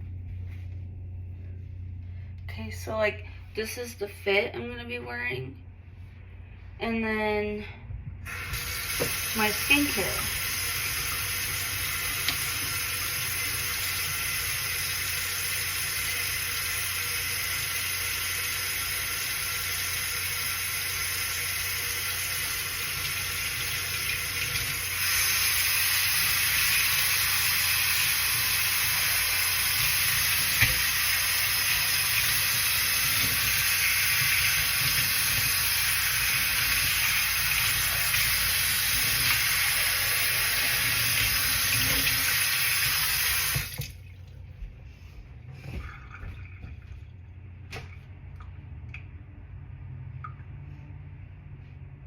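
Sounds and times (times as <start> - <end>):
water running from a tap: 8.3 - 44.2.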